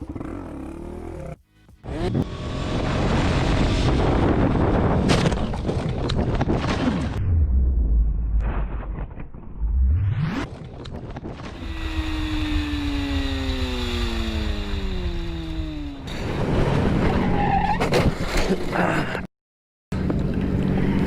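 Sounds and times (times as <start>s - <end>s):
motorcycle engine slowing: 11.5s - 16.2s.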